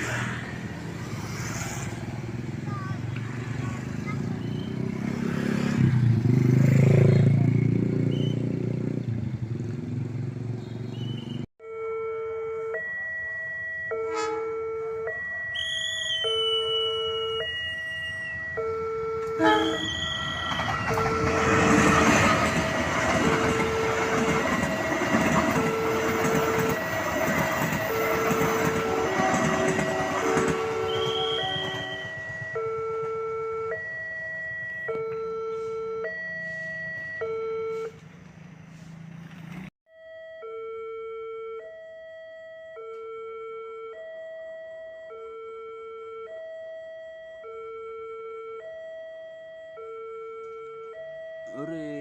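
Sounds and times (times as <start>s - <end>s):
train passing: 0.0s - 7.9s, 15.1s - 34.9s
motorcycles: 0.0s - 11.5s, 19.6s - 39.8s
road traffic: 0.0s - 52.0s
level crossing warning alarm: 11.6s - 38.0s, 39.9s - 52.0s.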